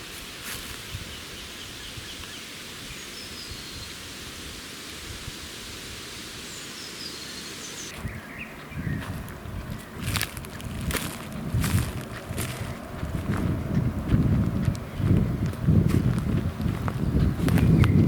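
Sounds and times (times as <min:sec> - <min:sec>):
steady hiss: 0:00.0 - 0:07.9
faint bird chirps: 0:01.1 - 0:04.0
low thuds: 0:10.0 - 0:18.0.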